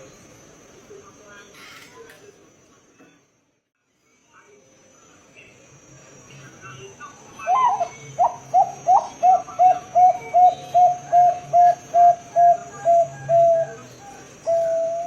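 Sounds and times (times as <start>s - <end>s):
dove cooing: 7.4s - 15.0s.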